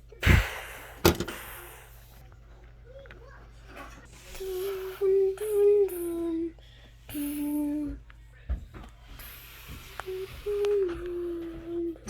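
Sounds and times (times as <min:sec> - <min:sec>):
breathy hisses: 0:00.0 - 0:02.2, 0:04.1 - 0:07.9, 0:09.0 - 0:11.8
person humming: 0:04.3 - 0:08.0, 0:09.7 - 0:12.0.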